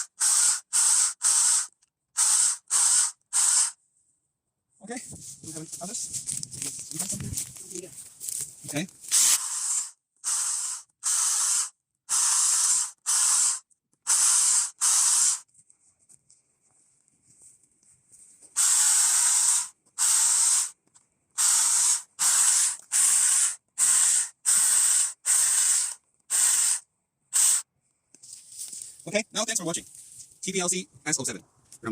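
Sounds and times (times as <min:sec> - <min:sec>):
saw cutting through branch: 0:09.1 - 0:15.4.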